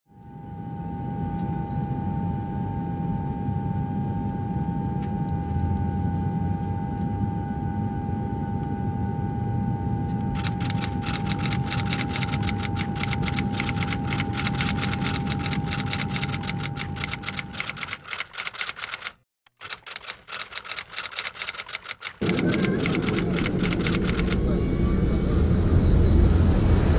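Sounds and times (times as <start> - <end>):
high hum: 10.4 - 18.7
rapid typewriter-like clicks: 10.4 - 24.4.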